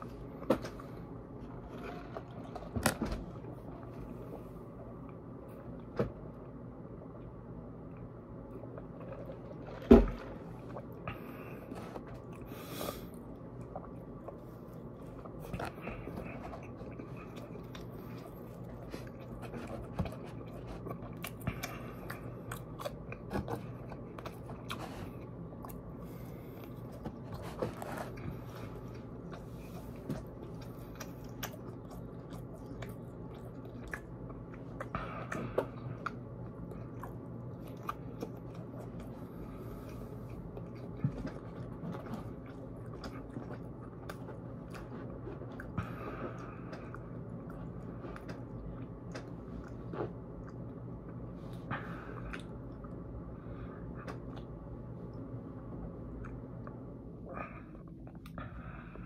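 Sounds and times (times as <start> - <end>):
low hum: 0.0 - 59.0
chewing and biting fried food: 8.0 - 53.0.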